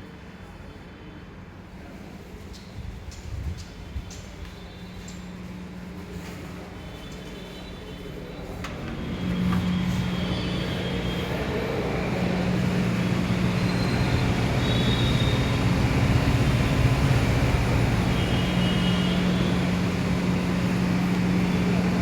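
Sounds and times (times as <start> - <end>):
vehicle engine hum: 8.6 - 22.0.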